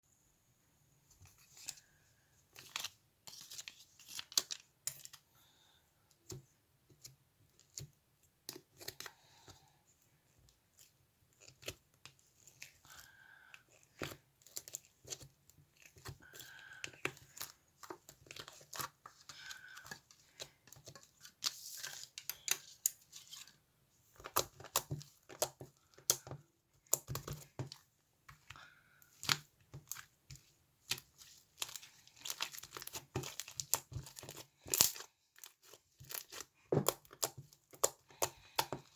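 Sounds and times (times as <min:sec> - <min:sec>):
material crinkling and tearing: 0:29.2 - 0:38.9.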